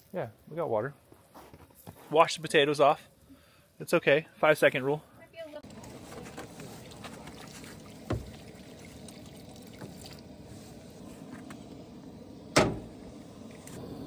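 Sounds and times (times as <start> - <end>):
water splashing over potatoes: 6.7 - 10.2
sharp knock: 12.6 - 12.9.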